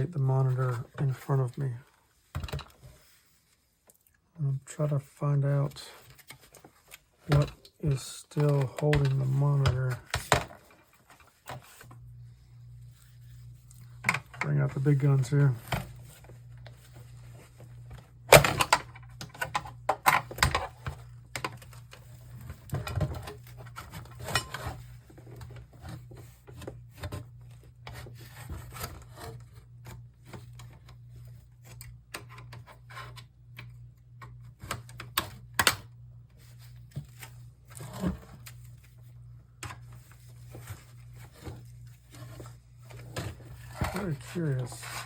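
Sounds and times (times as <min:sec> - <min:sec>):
steady low hum: 0:00.0 - 0:45.0
scraping and rubbing on plastic: 0:23.4 - 0:33.3, 0:36.3 - 0:45.0.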